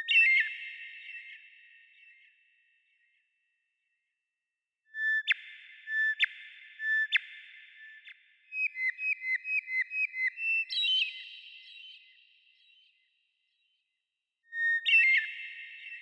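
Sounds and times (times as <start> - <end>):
songbird singing: 8.6 - 13.0.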